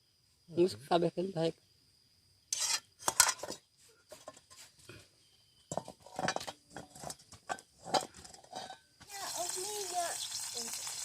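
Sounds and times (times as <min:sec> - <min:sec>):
utensils knocking against a pan: 0:05.7 - 0:08.8.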